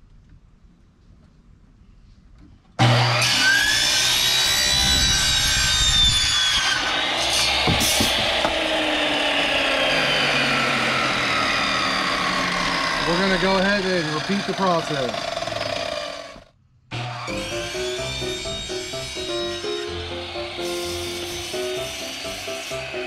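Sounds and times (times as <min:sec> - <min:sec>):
miter saw motor whine: 0:02.8 - 0:23.0
saw blade rasping plastic: 0:17.2 - 0:23.0.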